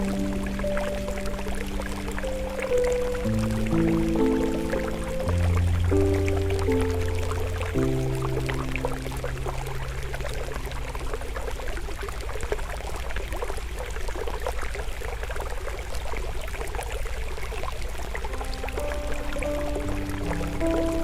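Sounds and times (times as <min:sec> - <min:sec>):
soft held music notes: 0:00.0 - 0:12.0
forest stream flowing: 0:00.0 - 0:21.0.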